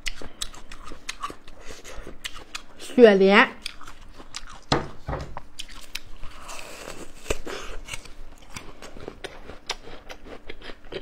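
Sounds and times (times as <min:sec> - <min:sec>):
crunching and chewing raw tuber: 0:00.0 - 0:02.9, 0:03.6 - 0:11.0.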